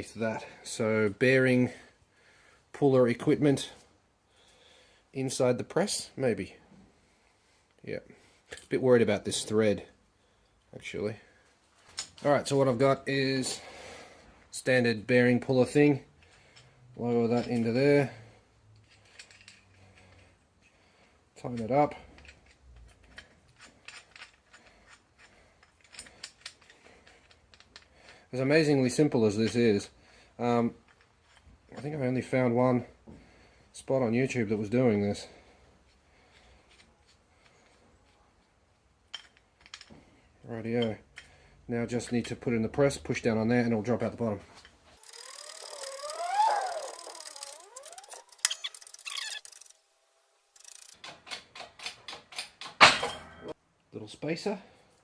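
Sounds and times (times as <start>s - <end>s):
bearing press squeaking and creaking: 44.9s - 49.8s.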